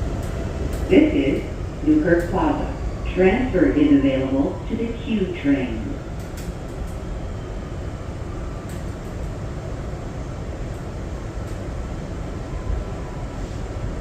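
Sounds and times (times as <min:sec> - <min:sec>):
subway car rumble: 0:00.0 - 0:14.0
faint clicks: 0:06.2 - 0:07.0.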